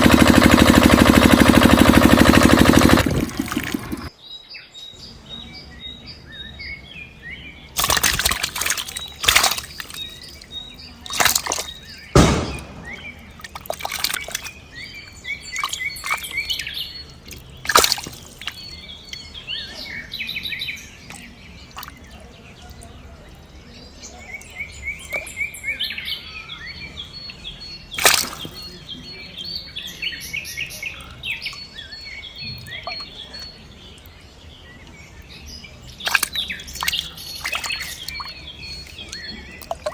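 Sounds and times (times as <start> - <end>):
small birds chirping: 0.0 - 39.9
loud splashes or thumps: 12.2 - 13.9.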